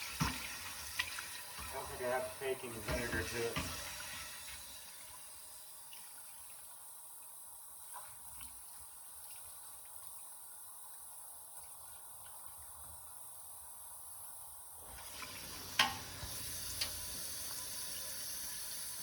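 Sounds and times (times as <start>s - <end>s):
water running from sink tap: 0.0s - 6.1s, 14.8s - 19.0s.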